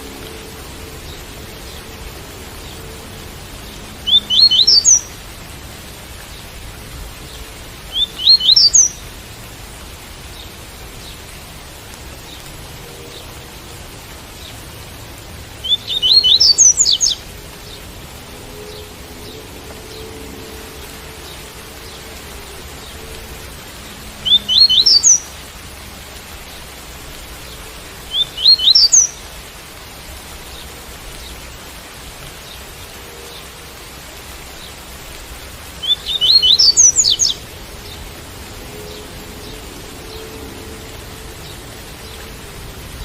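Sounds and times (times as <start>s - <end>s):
steady rain: 0.0s - 43.0s
bird singing: 4.0s - 5.2s, 7.3s - 9.0s, 15.6s - 17.8s, 24.2s - 25.4s, 27.6s - 29.2s, 35.8s - 38.1s.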